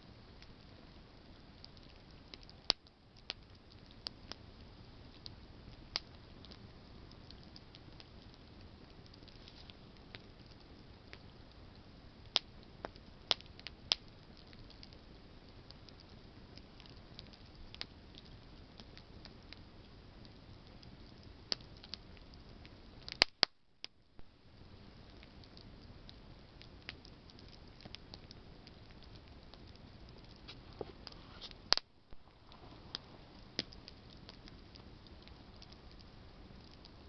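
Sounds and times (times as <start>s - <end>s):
low hiss of flame: 0.0s - 23.5s, 24.1s - 37.0s
campfire crackling: 0.0s - 37.0s
sharp fire pops: 12.2s - 15.0s, 23.0s - 23.6s, 26.7s - 36.1s.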